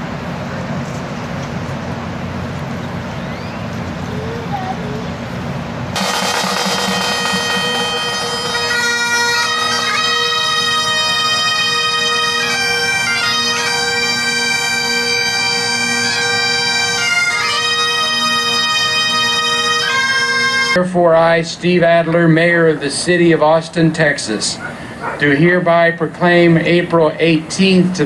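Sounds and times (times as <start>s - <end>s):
bagpipes playing a tune: 6.0s - 20.8s.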